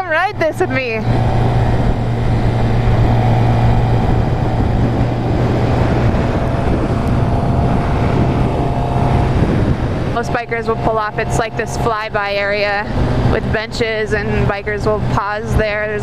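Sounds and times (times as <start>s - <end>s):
motorcycle engine running: 0.0s - 16.0s
wind rush on microphone: 0.0s - 16.0s.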